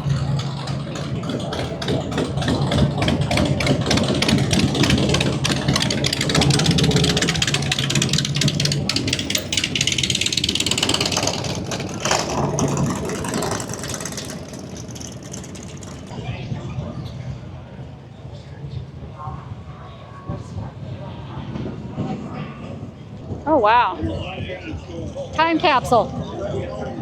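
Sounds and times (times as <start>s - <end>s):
motorcycle engine running: 0.0s - 17.5s.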